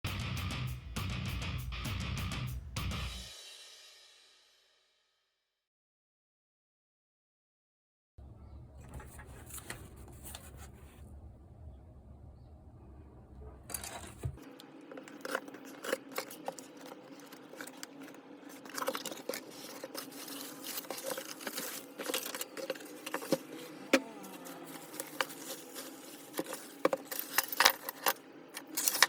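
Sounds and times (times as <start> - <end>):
crinkling: 8.8 - 11.2, 13.5 - 29.0
hands handling small hard objects: 13.7 - 23.6, 24.2 - 29.0.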